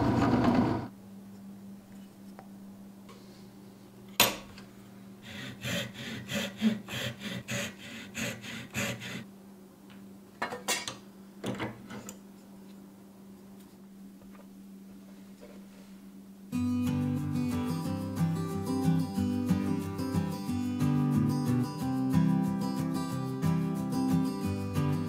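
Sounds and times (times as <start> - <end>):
hand saw cutting wood: 5.2 - 9.2.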